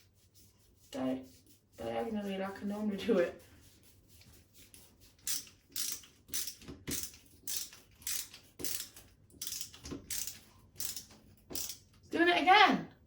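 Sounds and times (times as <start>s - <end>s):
screw grating into wall plug: 4.7s - 12.0s.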